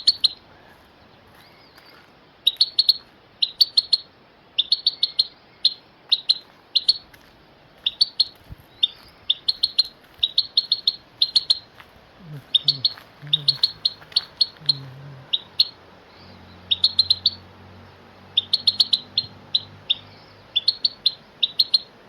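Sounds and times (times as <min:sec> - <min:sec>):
bird chirping: 0:00.0 - 0:07.2, 0:07.8 - 0:22.0.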